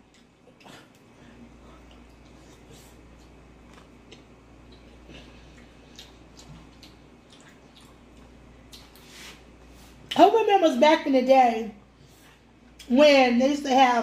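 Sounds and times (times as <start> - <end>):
chewing with wet mouth smacks: 0.0 - 1.1, 1.8 - 9.0.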